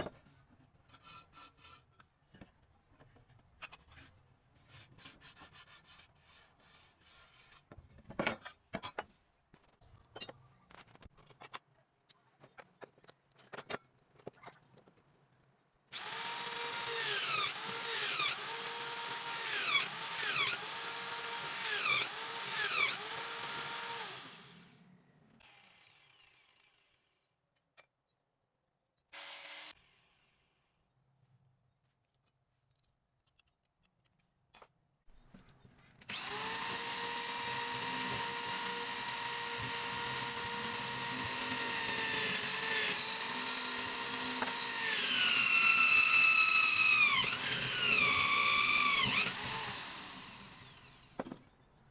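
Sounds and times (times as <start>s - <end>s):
small power drill running: 15.9s - 24.8s, 25.4s - 27.0s, 29.2s - 30.2s, 36.1s - 51.2s.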